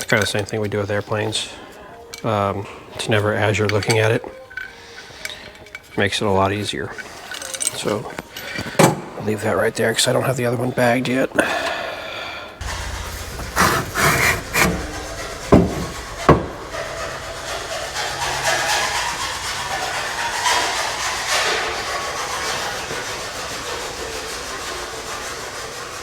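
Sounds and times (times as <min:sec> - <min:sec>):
sharp knocks: 0:12.6 - 0:20.0
rubbing and scraping: 0:12.6 - 0:26.0.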